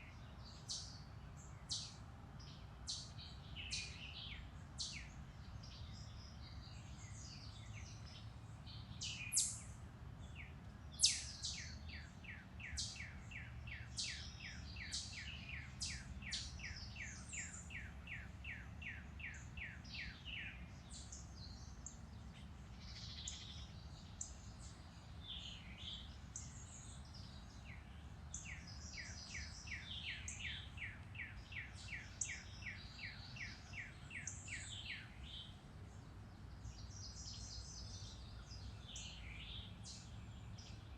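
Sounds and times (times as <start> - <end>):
low steady rumble: 0.0 - 40.9
bird chirps: 5.7 - 22.0, 22.7 - 35.6.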